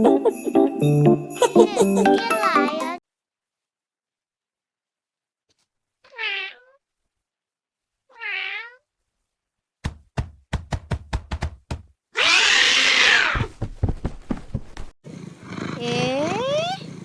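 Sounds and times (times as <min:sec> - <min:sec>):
cat meowing: 0:06.1 - 0:06.8, 0:08.1 - 0:08.9, 0:12.2 - 0:13.5
sharp knocks: 0:09.8 - 0:11.9.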